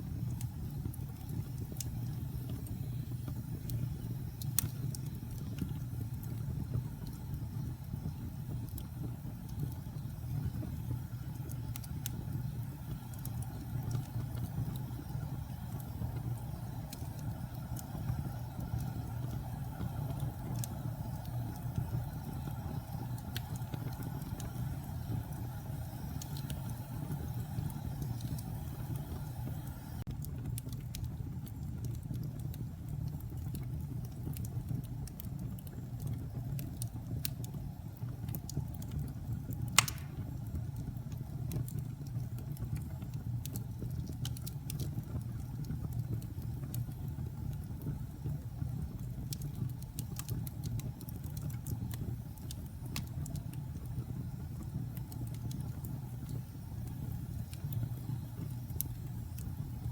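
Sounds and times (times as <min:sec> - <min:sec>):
wood fire crackling: 0:00.0 - 0:59.9
loud fire pop: 0:39.8 - 0:40.3.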